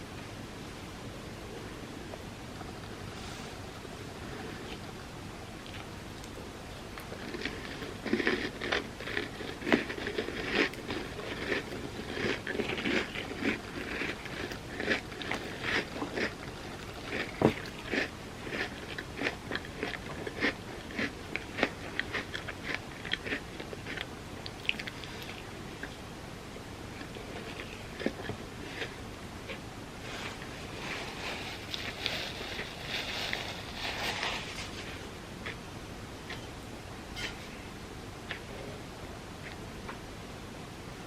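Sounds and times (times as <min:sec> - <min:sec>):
chewing and crunching cookie: 0:04.2 - 0:26.1, 0:26.9 - 0:36.6.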